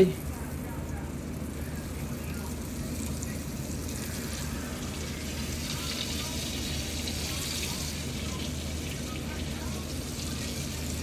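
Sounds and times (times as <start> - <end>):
chicken frying in hot oil: 1.2 - 11.0.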